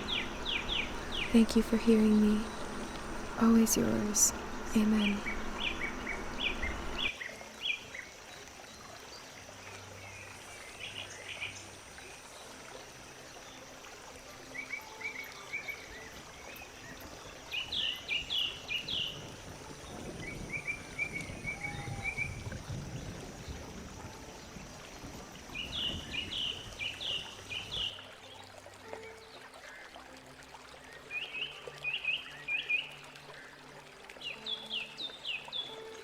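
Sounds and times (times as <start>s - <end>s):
bird chirping: 0.0s - 7.1s
steady high-pitched whine: 0.0s - 7.1s.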